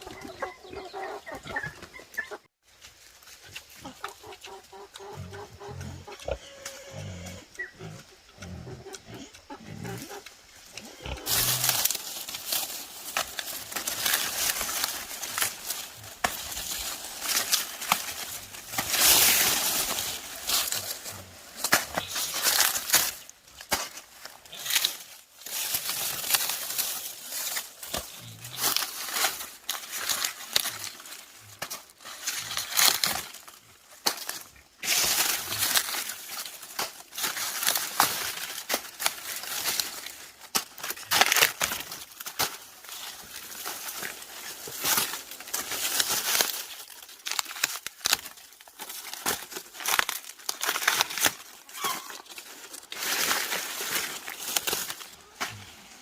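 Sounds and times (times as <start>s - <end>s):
wild boars grunting: 4.6s - 12.0s.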